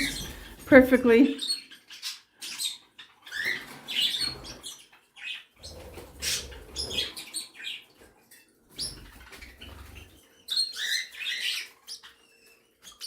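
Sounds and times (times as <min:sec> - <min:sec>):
wings fluttering: 0:00.0 - 0:00.8, 0:05.6 - 0:08.1, 0:08.7 - 0:10.2
small birds chirping: 0:00.0 - 0:13.0.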